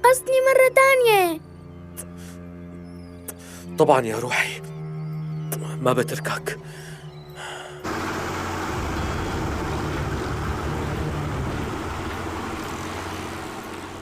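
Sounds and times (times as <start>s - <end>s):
vehicle rumbling and hissing: 7.5s - 14.0s.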